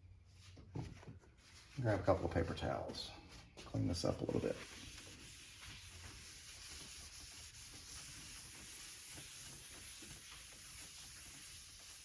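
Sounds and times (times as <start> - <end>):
paper towels rubbing metal parts: 3.8 - 12.0.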